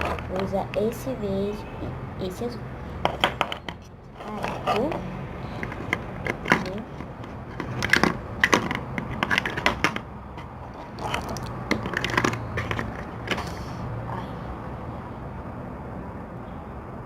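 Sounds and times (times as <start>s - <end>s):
plastic pots knocking together: 5.6s - 10.1s, 10.9s - 13.4s.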